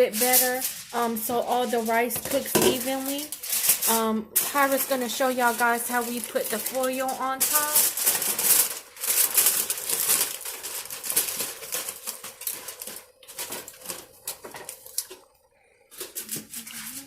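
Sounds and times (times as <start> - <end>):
aluminium foil crinkling: 0.0 - 17.0.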